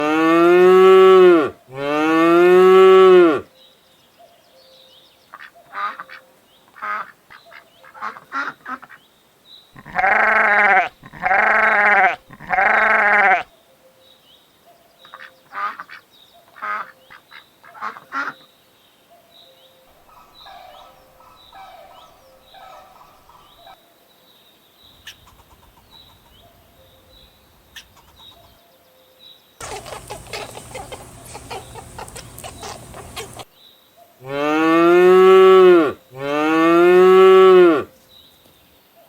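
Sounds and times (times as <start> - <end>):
farm animal calling: 9.8 - 13.5, 20.0 - 23.8, 29.6 - 33.5.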